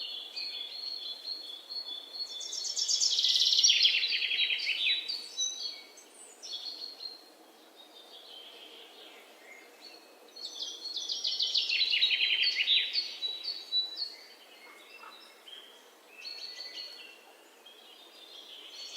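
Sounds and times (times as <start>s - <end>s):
low steady background hiss: 0.0s - 18.9s
songbirds singing: 0.0s - 18.9s.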